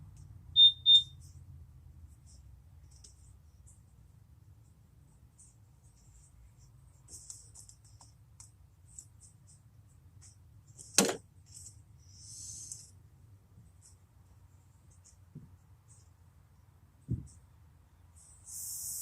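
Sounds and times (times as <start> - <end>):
brief hiss: 18.4 - 19.0.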